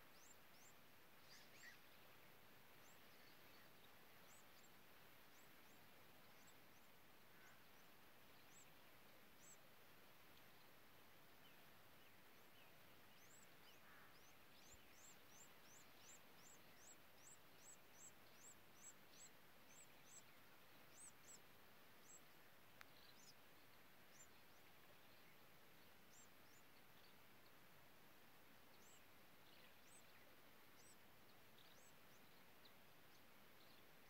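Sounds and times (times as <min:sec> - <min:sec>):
faint tick: 0:00.0 - 0:21.4, 0:22.0 - 0:27.6
background hiss: 0:00.0 - 0:34.0
small bird chirping: 0:12.4 - 0:21.4.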